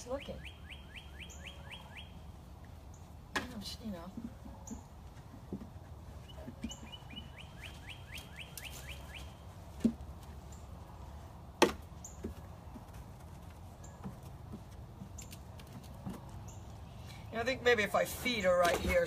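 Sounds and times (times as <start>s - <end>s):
bird trilling: 0.0s - 2.3s, 6.2s - 9.4s.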